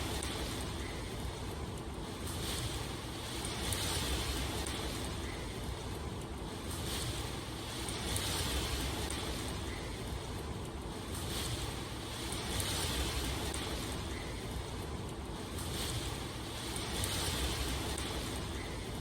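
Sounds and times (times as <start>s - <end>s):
rushing water: 6.5s - 19.0s.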